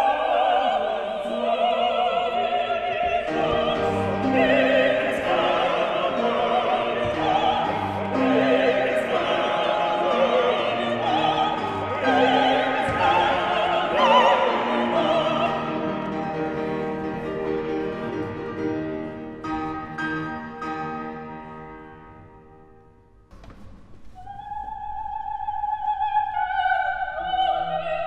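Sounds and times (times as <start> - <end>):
opera singing: 0.0 - 18.4, 24.2 - 28.0.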